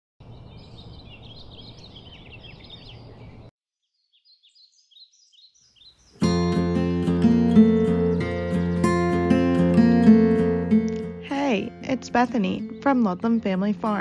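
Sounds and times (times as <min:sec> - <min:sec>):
small birds chirping: 0:00.2 - 0:14.0
acoustic guitar music: 0:06.1 - 0:14.0.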